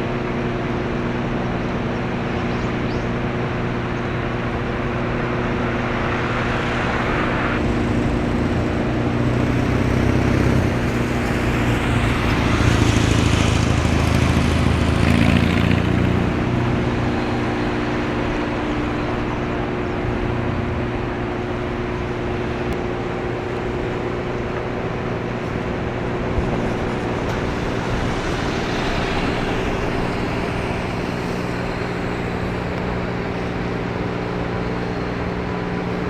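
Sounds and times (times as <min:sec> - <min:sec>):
ship engine drone: 0:00.0 - 0:36.0.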